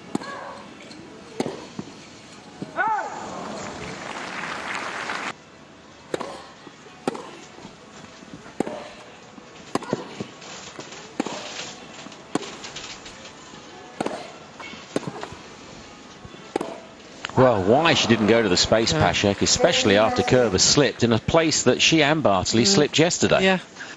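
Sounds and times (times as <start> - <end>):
racquets striking tennis ball: 1.3 - 1.9, 6.1 - 12.8, 14.0 - 15.4, 16.5 - 18.4
tennis ball bouncing: 1.4 - 1.9, 6.1 - 7.4, 8.5 - 9.1, 9.7 - 10.3, 14.0 - 15.4, 16.5 - 18.4.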